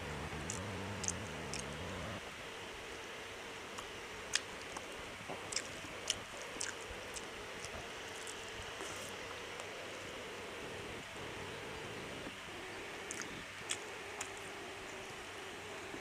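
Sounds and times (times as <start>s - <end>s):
low hum: 0.0s - 2.4s
person chewing wet clicks: 0.4s - 1.8s, 3.7s - 9.8s, 13.1s - 14.5s.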